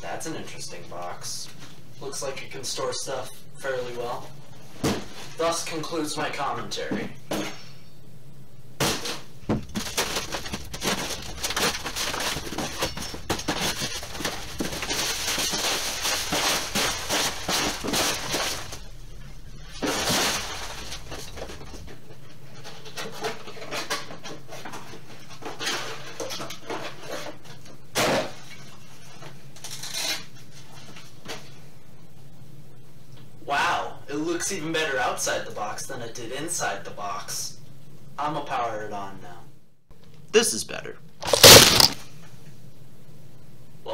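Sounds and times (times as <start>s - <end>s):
plastic crinkles: 9.5s - 22.0s
packing materials rustling: 9.5s - 24.0s, 41.2s - 42.0s
cardboard box ripping: 9.7s - 18.8s, 41.2s - 42.0s.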